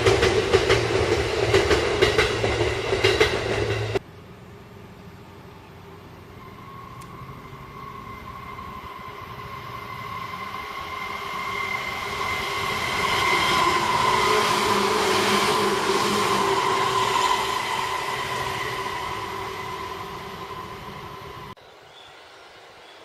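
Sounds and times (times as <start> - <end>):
electric train rumble: 0.0 - 21.6
high whining tones: 6.1 - 21.6.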